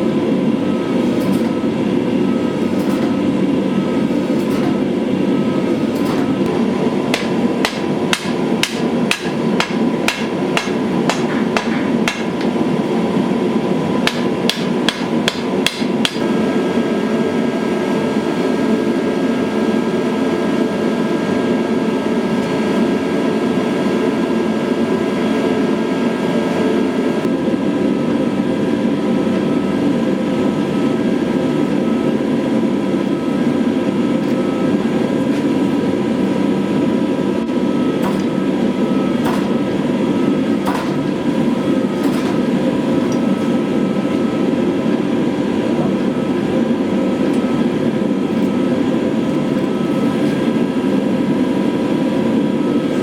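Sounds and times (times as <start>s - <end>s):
loud mechanical rushing noise: 0.0s - 53.0s.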